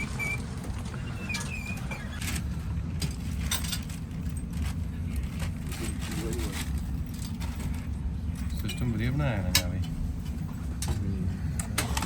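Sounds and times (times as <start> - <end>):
high wavering squeak: 0.0 - 2.3
train carriage rumble: 0.0 - 12.0.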